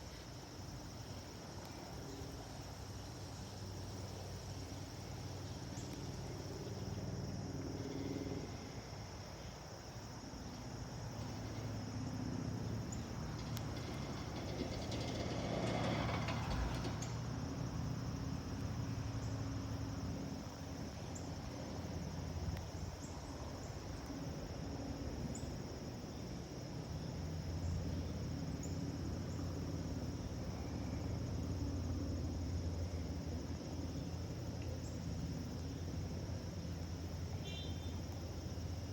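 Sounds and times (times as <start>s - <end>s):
crickets trilling: 0.0s - 38.9s
distant jet engines rumbling: 0.2s - 38.9s.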